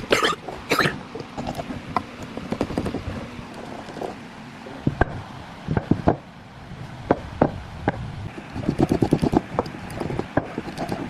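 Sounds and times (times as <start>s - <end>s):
fast taps on wood: 8.5s - 11.0s.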